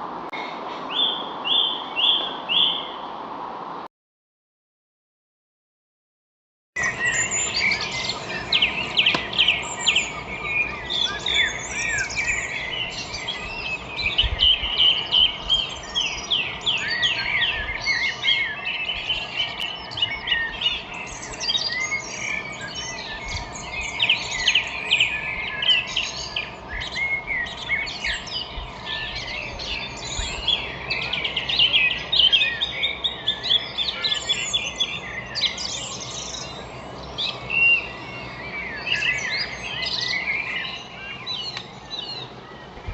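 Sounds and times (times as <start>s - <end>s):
small birds chirping: 6.8s - 42.9s.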